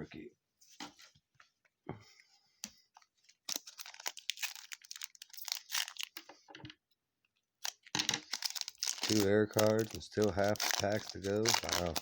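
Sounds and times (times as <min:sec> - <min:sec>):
card packaging rustling and crinkling: 0:03.2 - 0:06.3, 0:07.6 - 0:12.0.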